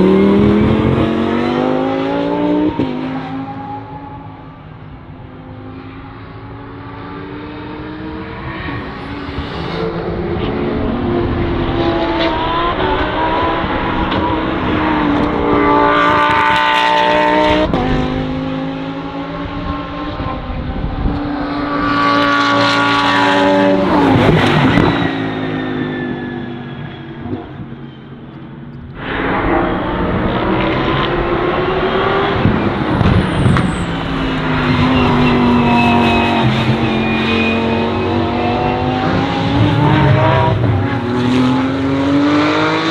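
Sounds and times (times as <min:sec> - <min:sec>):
race car engines revving: 0:00.0 - 0:28.2, 0:28.8 - 0:42.9
race cars passing by: 0:00.0 - 0:42.9.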